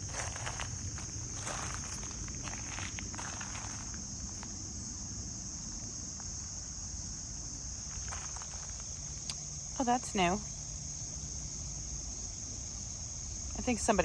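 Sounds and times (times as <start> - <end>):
footsteps and rustles: 0.0 - 4.5
crickets trilling: 0.0 - 14.0.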